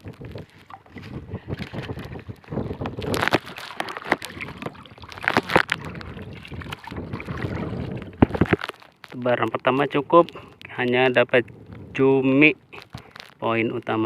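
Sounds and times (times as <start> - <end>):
water slapping against boat hull: 0.0 - 10.0
wind on microphone: 0.0 - 14.0.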